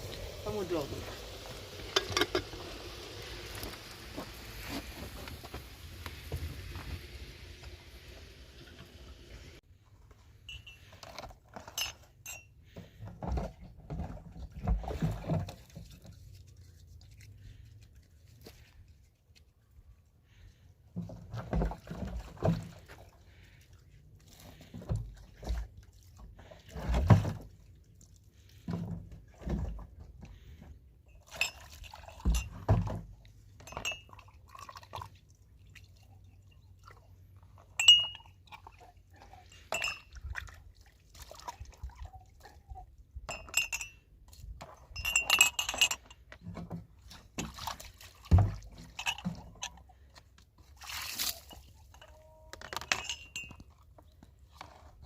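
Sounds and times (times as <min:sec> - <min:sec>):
dishes and glassware clinking: 0:01.9 - 0:02.5, 0:10.5 - 0:12.5, 0:31.2 - 0:33.0, 0:33.6 - 0:34.2, 0:37.8 - 0:38.4, 0:39.5 - 0:40.1, 0:43.3 - 0:44.0, 0:44.6 - 0:46.3, 0:48.8 - 0:49.8, 0:51.9 - 0:53.8.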